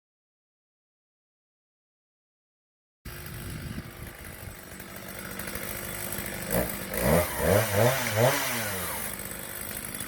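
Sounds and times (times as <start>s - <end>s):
chainsaw engine idling and revving: 3.1s - 10.0s.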